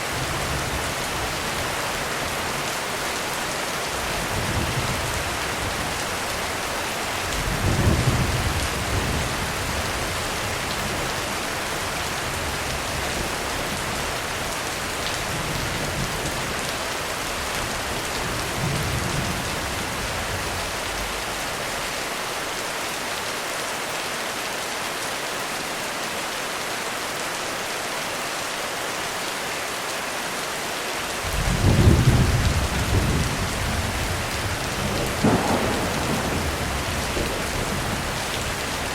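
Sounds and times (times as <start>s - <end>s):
heavy rain on a roof: 0.0s - 38.9s
thunder rumbling: 31.3s - 38.9s.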